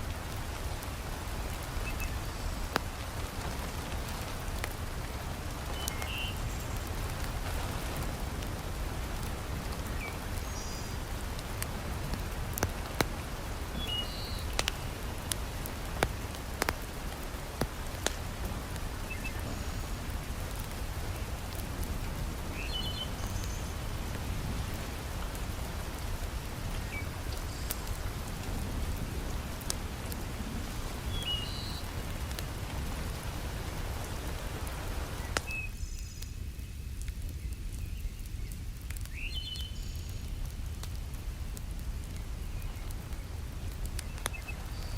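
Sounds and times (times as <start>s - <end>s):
heavy rain: 0.0s - 44.9s
wood fire crackling: 0.0s - 44.9s.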